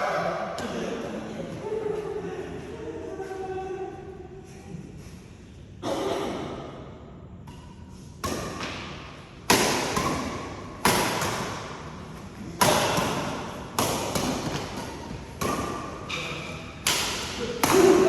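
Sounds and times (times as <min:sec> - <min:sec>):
racket hitting shuttlecock: 0:07.4 - 0:18.0.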